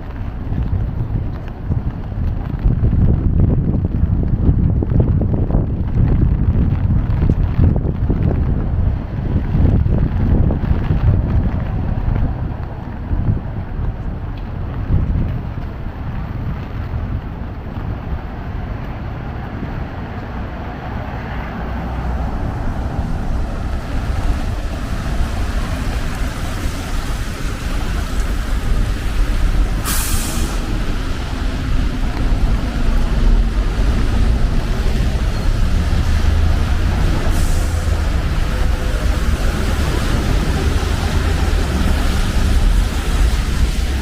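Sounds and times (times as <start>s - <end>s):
city traffic rumble: 0.0s - 44.0s
wind on microphone: 0.0s - 44.0s
air brake hiss: 29.8s - 30.7s.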